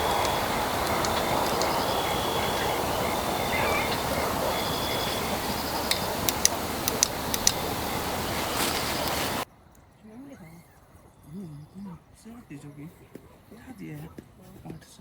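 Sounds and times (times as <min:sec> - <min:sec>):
birds chirping: 0:00.0 - 0:09.4
sharp clicks: 0:00.0 - 0:09.4
steady breeze: 0:00.0 - 0:14.8.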